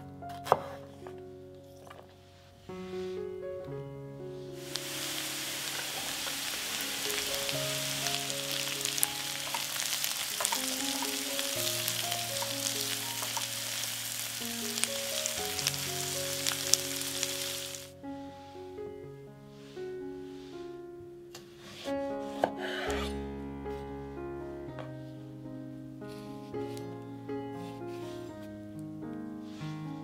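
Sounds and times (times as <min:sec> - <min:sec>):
background music: 0:00.0 - 0:30.0
food sizzling in a pan: 0:04.6 - 0:17.9
oil popping and crackling: 0:04.7 - 0:17.9.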